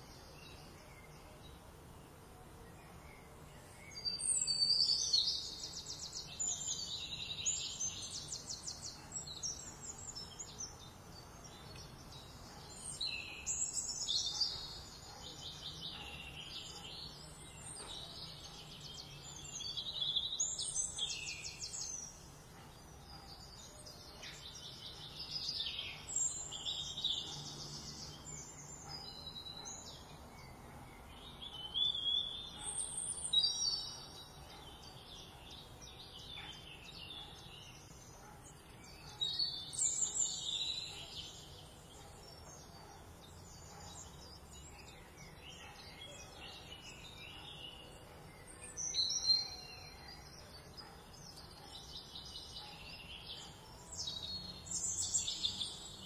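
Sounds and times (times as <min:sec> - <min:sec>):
faint background hiss: 0:00.0 - 0:29.0
songbirds singing: 0:00.0 - 0:56.0.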